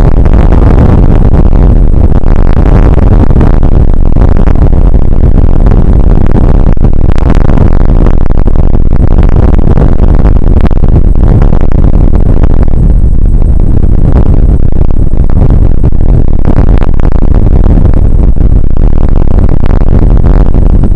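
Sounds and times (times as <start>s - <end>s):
rain on microphone: 0.0s - 20.9s.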